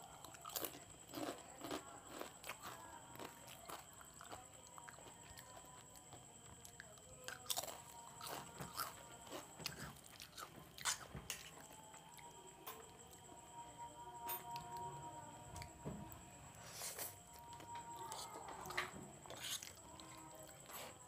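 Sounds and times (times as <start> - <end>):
crunching crisp snacks: 0.0 - 11.6.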